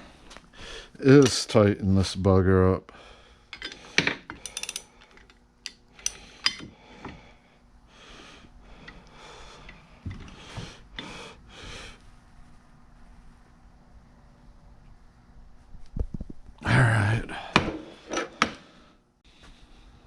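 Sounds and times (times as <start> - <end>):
man breathing heavily: 0.0 - 1.0, 2.9 - 5.3, 5.9 - 12.2, 16.6 - 20.0.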